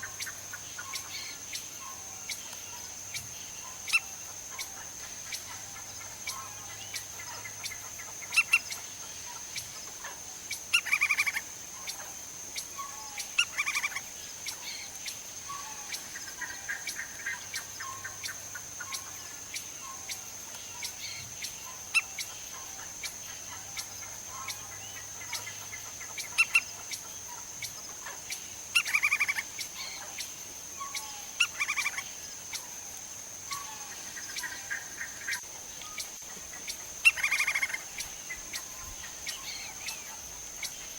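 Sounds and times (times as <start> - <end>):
woodpecker rattling call: 23.8 - 32.1, 33.5 - 40.9.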